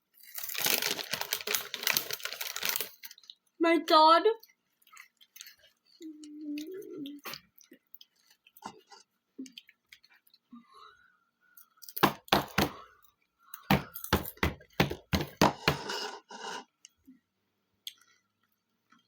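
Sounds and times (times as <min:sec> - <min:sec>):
crunchy snack being chewed: 0:00.1 - 0:03.5, 0:04.4 - 0:10.4.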